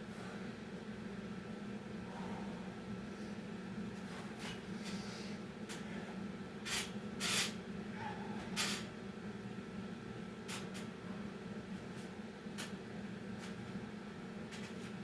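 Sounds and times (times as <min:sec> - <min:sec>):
heavy breathing exhales: 0:02.0 - 0:03.4.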